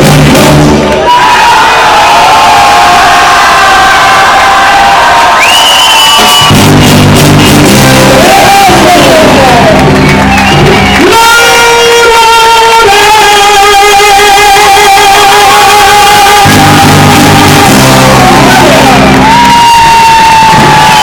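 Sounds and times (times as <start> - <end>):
live band music: 0.0 - 1.0, 5.6 - 21.0
person singing sustained notes: 7.9 - 9.7, 11.2 - 21.0.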